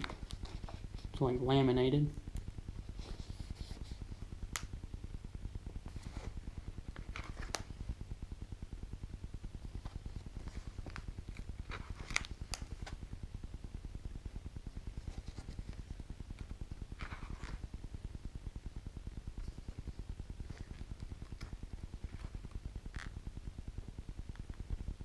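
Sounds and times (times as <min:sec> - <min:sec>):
low pulsing hum: 0:00.0 - 0:25.0
pages rustling: 0:05.9 - 0:07.7, 0:09.8 - 0:13.0, 0:17.0 - 0:17.7.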